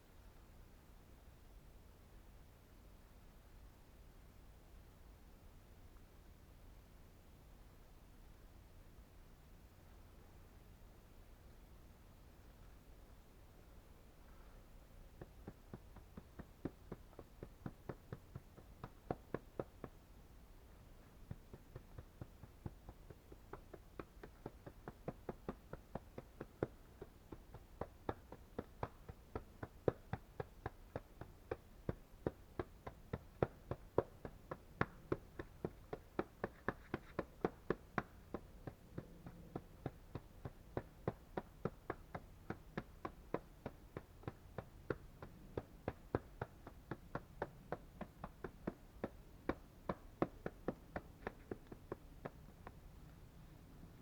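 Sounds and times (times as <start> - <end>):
light sharp taps: 15.2 - 20.1, 20.8 - 53.3.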